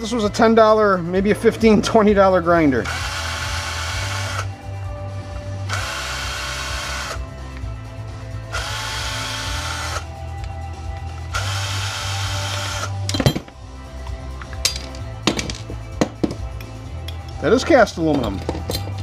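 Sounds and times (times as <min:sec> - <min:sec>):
power drill spinning: 0:02.8 - 0:04.6, 0:05.6 - 0:07.2, 0:08.5 - 0:10.1, 0:11.1 - 0:13.0.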